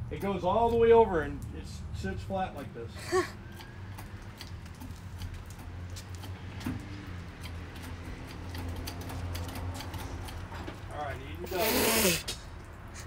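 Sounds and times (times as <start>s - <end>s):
hand pump clicking: 3.5s - 10.5s.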